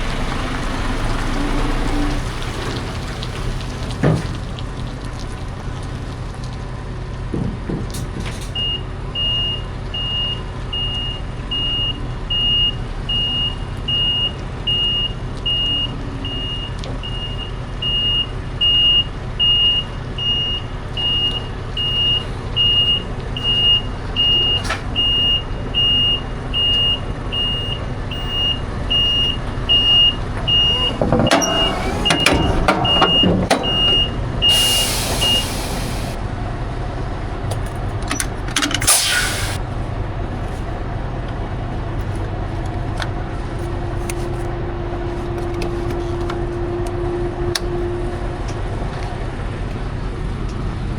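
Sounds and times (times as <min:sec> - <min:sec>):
diesel truck engine running: 0:00.0 - 0:50.9
reversing alarm beeping: 0:08.6 - 0:36.2.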